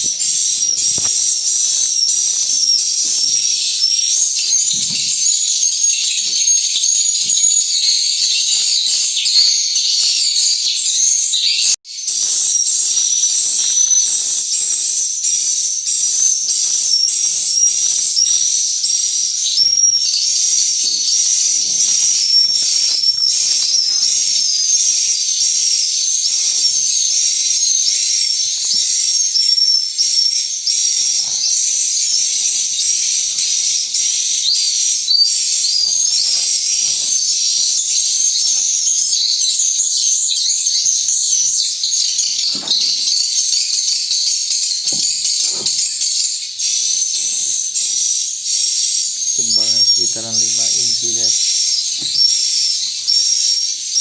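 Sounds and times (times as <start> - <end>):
faint scrapes and knocks: 42.2 - 43.5, 44.8 - 46.2.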